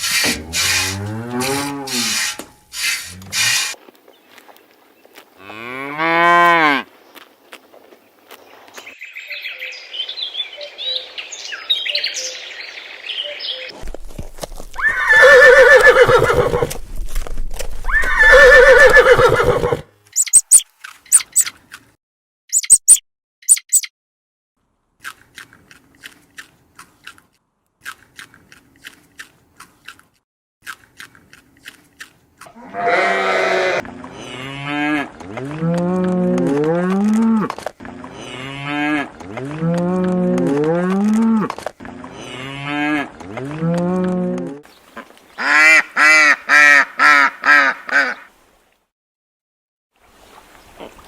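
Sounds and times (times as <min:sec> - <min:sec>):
large farm animal calling: 0:00.0 - 0:03.8, 0:32.4 - 0:44.6, 0:45.4 - 0:48.3.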